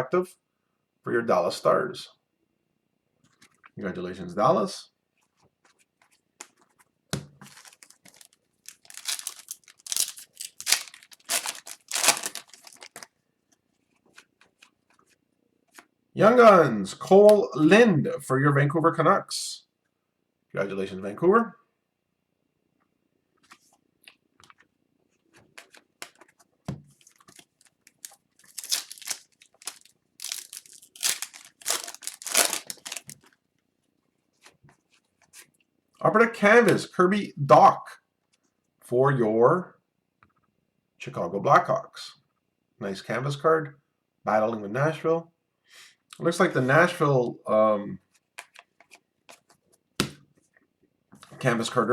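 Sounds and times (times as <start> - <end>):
wrapper tearing and crinkling: 7.4 - 13.1, 27.1 - 33.3.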